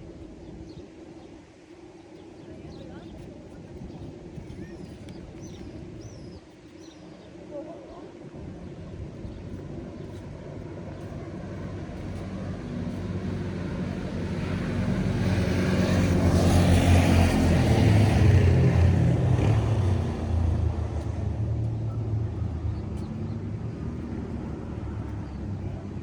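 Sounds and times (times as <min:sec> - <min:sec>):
vehicle engine passing by: 0:11.1 - 0:26.0.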